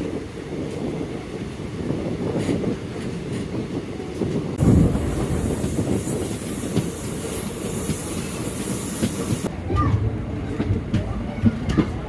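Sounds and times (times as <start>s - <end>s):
train rumbling: 0.0s - 12.0s
hiss: 4.6s - 9.5s.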